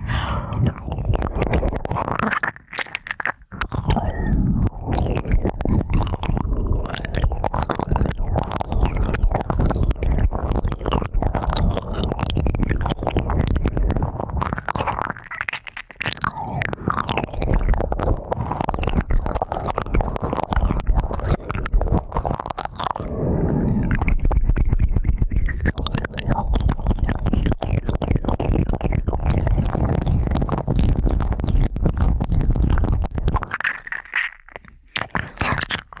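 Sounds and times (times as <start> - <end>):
ear pick scratching microphone: 0.0 - 2.7, 3.6 - 36.0.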